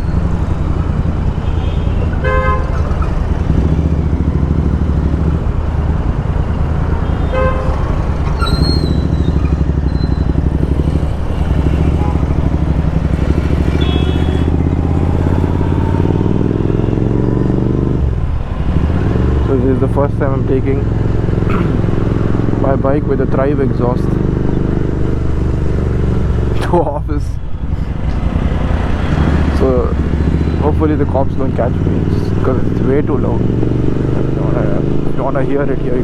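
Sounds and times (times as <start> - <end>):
loud motorcycle engine: 0.0 - 36.0
vehicle horns honking: 1.3 - 3.7, 7.0 - 15.7.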